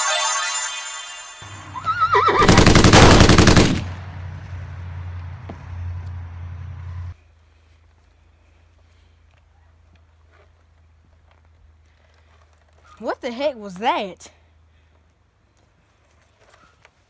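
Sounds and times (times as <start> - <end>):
horse whinny: 1.7 - 2.5.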